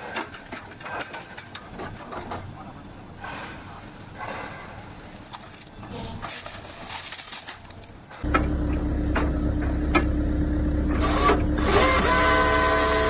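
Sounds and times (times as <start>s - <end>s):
hydraulics humming: 8.2s - 13.0s
saw drive whine: 8.2s - 13.0s.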